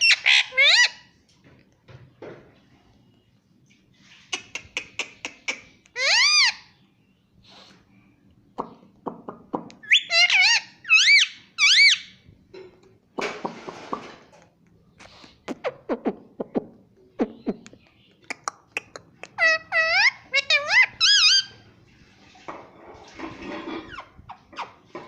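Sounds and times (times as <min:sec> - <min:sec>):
parrot squawking: 0:00.0 - 0:01.1, 0:04.4 - 0:06.8, 0:09.8 - 0:12.2, 0:18.3 - 0:21.6.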